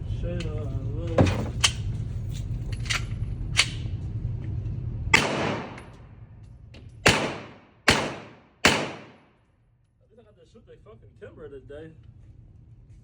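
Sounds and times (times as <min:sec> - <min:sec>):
steady low hum: 0:00.0 - 0:13.0
handgun shots echoing: 0:05.2 - 0:06.0, 0:07.0 - 0:09.3.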